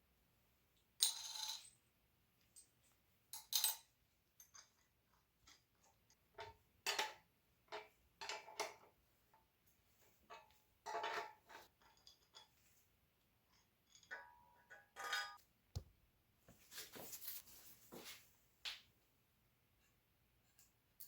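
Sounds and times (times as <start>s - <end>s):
tools clinking on bicycle parts: 13.5s - 15.4s.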